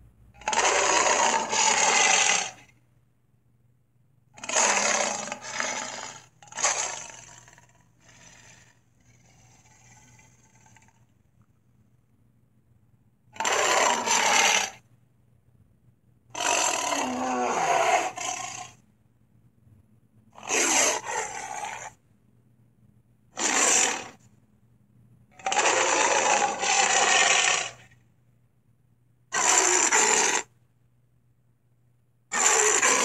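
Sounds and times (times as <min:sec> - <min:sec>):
harsh rasping dinosaur roars: 0:00.4 - 0:02.6, 0:04.4 - 0:11.1, 0:13.4 - 0:14.8, 0:16.3 - 0:18.8, 0:20.4 - 0:22.0, 0:23.4 - 0:24.2, 0:25.4 - 0:27.9, 0:29.3 - 0:30.5, 0:32.3 - 0:33.0.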